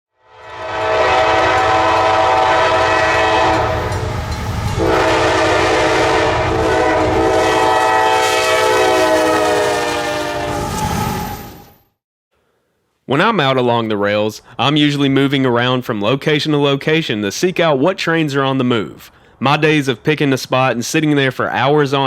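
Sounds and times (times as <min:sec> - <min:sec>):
locomotive air horn chord: 0:00.2 - 0:04.0, 0:04.7 - 0:10.8
train rumble: 0:00.7 - 0:11.6.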